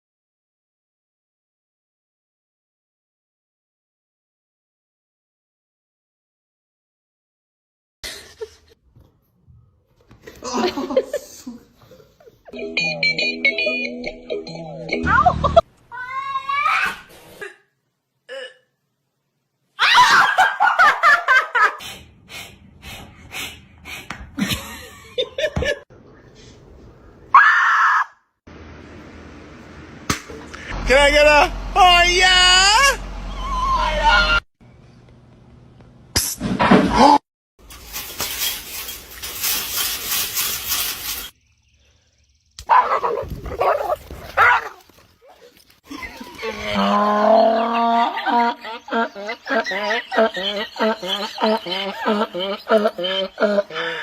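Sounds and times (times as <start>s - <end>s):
person laughing: 10.4s - 12.6s, 24.4s - 25.8s, 45.9s - 54.0s
rustling noise: 37.6s - 41.4s
dog barking and whining: 42.7s - 46.7s.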